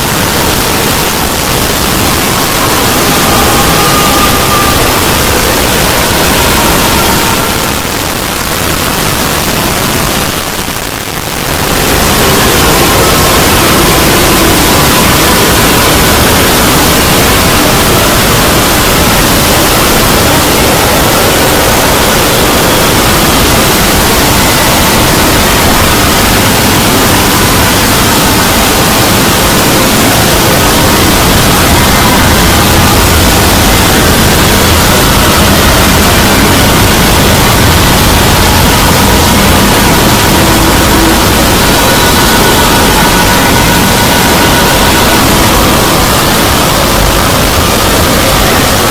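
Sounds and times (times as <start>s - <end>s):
faint steady tones: 0.0s - 48.9s
loud hiss-like noise: 0.0s - 48.9s.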